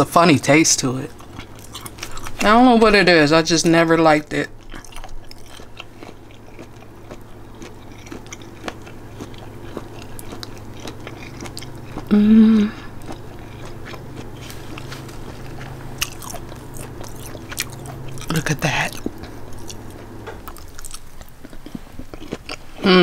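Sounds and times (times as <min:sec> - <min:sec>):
person chewing food: 0:01.0 - 0:02.6, 0:04.2 - 0:22.9
person humming briefly: 0:12.1 - 0:12.9.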